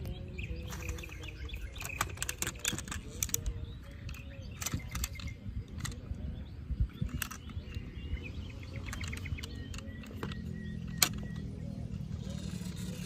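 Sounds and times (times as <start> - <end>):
sharp clicks and knocks: 0.7 - 6.2, 8.7 - 11.5.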